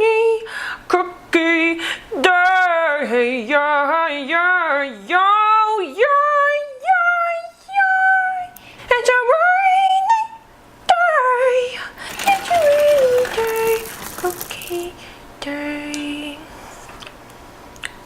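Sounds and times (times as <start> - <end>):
woman singing wordless vocal runs: 12.0 - 16.5.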